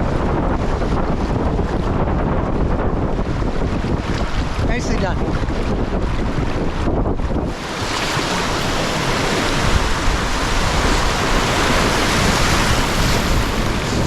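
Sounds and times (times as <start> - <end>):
whitewater roaring: 3.4 - 14.0.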